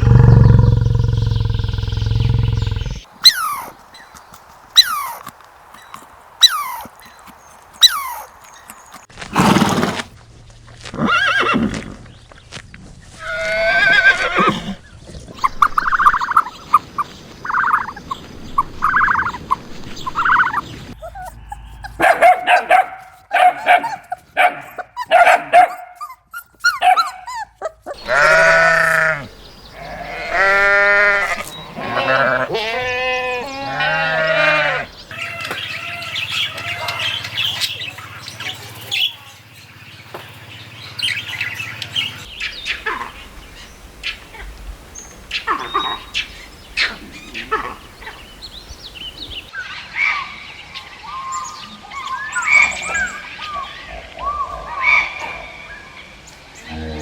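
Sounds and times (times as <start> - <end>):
dog yipping: 3.2 - 3.8, 4.8 - 5.2, 6.4 - 6.9, 7.8 - 8.3, 20.3 - 28.3
goats bleating: 27.9 - 34.9.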